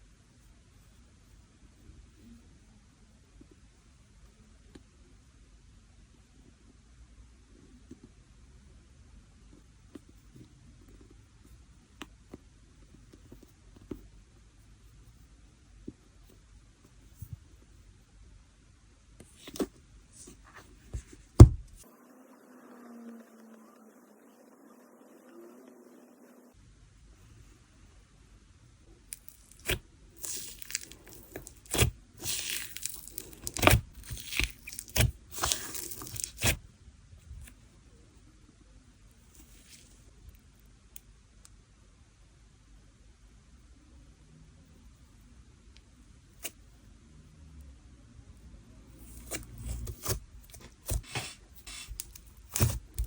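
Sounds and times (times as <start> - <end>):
slime squishing: 29.1 - 36.6, 49.0 - 53.0.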